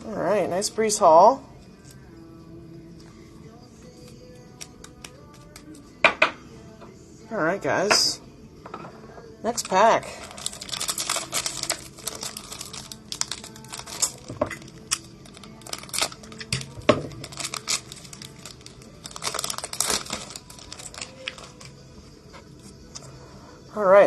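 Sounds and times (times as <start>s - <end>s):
plastic wrapper tearing and crinkling: 9.6s - 21.8s.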